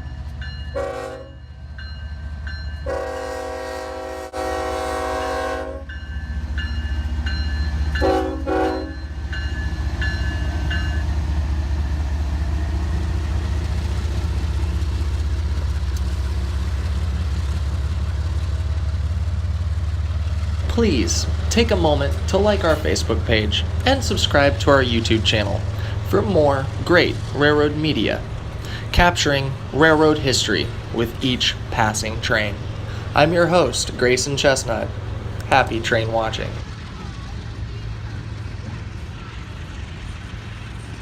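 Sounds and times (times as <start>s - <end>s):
diesel train rumble: 0.0s - 41.0s
locomotive air horn: 0.8s - 1.4s, 2.8s - 5.9s, 8.0s - 9.0s.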